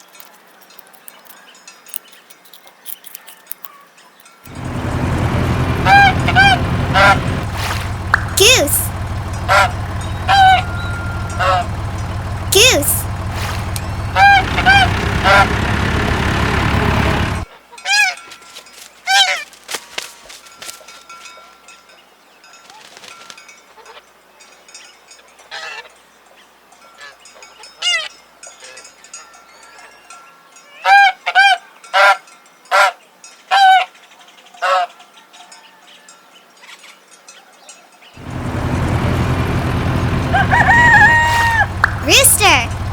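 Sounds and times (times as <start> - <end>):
tractor engine running: 4.5 - 17.5, 38.2 - 42.9
goose honking: 4.6 - 8.4, 9.2 - 11.7, 13.5 - 15.6, 38.7 - 42.0.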